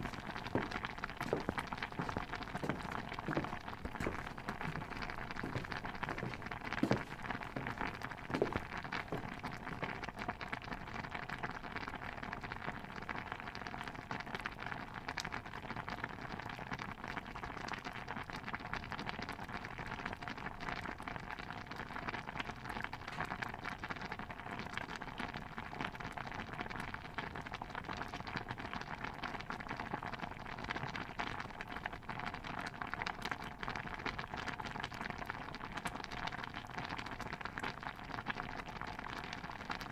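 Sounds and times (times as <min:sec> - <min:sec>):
stew bubbling in a pot: 0:00.0 - 0:39.9
soft knocks: 0:00.1 - 0:10.0.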